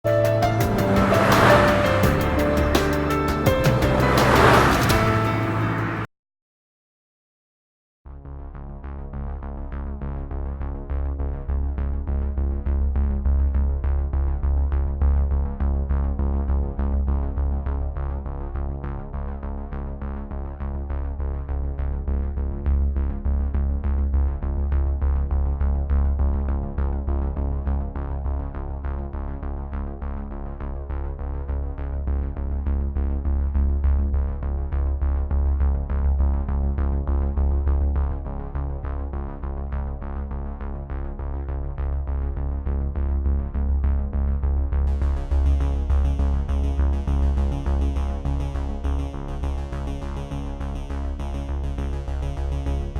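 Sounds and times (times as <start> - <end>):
electronic music: 0.1 - 6.1, 44.9 - 52.9.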